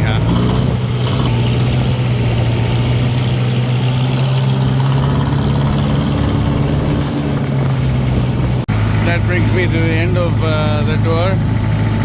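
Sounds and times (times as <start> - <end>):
motorboat engine droning: 0.0 - 12.0
wind and water hiss: 0.0 - 12.0.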